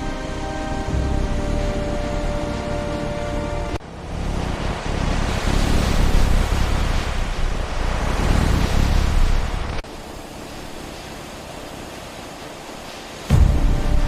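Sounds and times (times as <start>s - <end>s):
steady hiss: 9.4s - 14.0s.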